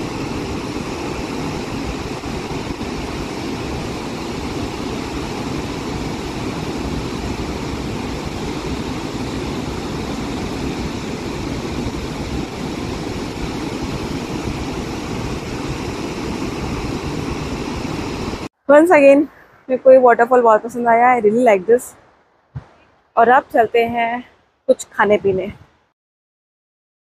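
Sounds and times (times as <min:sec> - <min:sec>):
waterfall rushing: 0:00.0 - 0:18.5.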